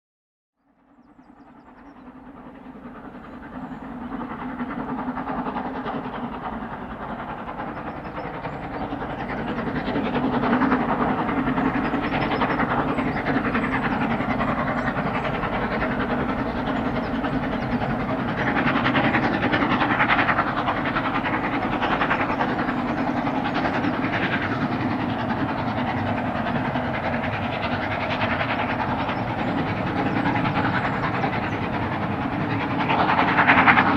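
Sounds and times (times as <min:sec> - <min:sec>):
steam locomotive working: 0:01.5 - 0:33.9.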